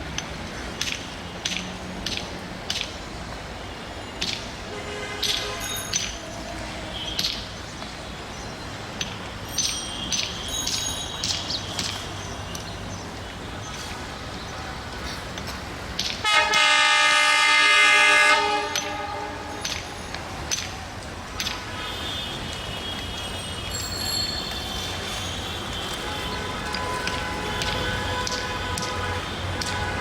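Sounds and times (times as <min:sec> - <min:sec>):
scattered clicks and clinks: 0:05.2 - 0:06.4, 0:08.9 - 0:12.8, 0:19.6 - 0:20.8, 0:23.3 - 0:26.0
locomotive air horn chord: 0:16.2 - 0:19.6.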